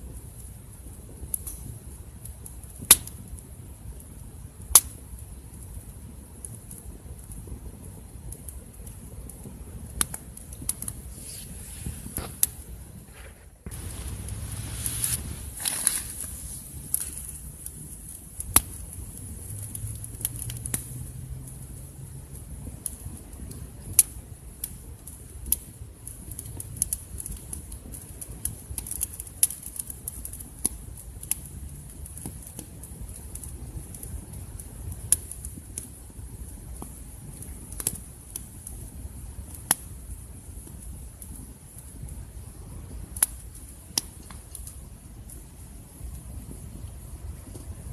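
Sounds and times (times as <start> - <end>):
campfire crackling and popping: 0.0 - 47.9
wood popping: 10.7 - 17.8.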